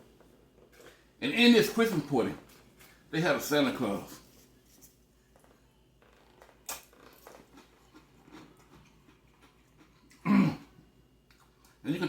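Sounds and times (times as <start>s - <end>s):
man chewing: 5.4s - 11.8s.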